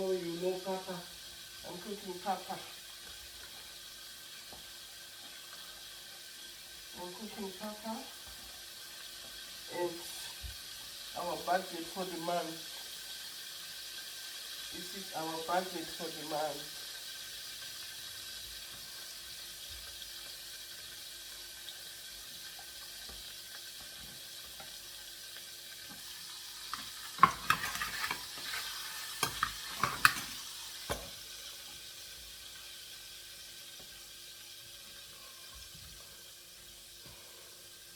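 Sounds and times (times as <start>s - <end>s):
food sizzling in a pot: 0.0s - 37.9s
spoon stirring and knocking pot: 26.7s - 31.2s.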